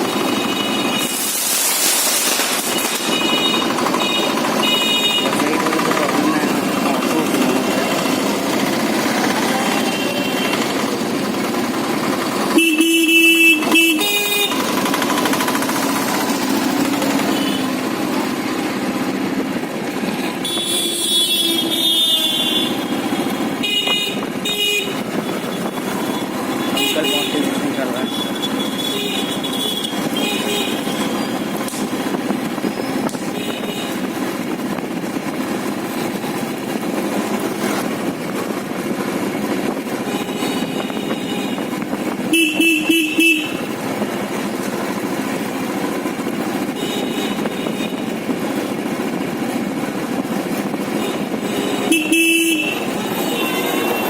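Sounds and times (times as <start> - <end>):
motorcycle engine and road noise: 0.0 - 54.0
vehicle horn toots: 2.6 - 5.6, 12.5 - 14.8, 20.2 - 31.4, 33.3 - 34.1, 40.0 - 43.7, 46.7 - 48.2, 50.9 - 54.0.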